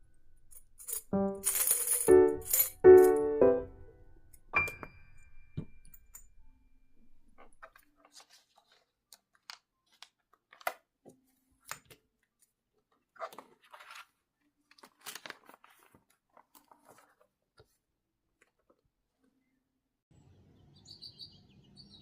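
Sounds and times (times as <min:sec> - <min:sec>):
crisp crunching and crinkling: 0:13.2 - 0:17.3.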